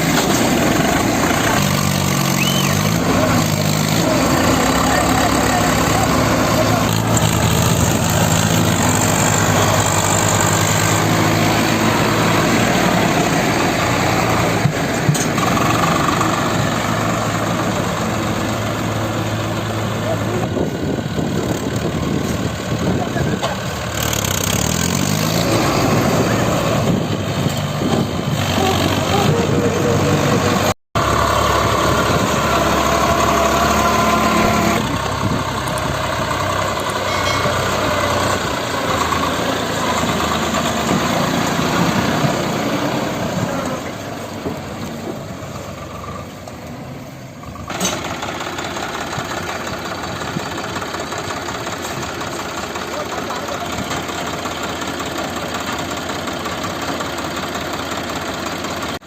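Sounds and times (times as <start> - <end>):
people's voices: 0.0 - 23.9, 27.8 - 30.7, 34.4 - 45.3, 48.4 - 56.6
diesel tractor engines running: 0.0 - 59.0.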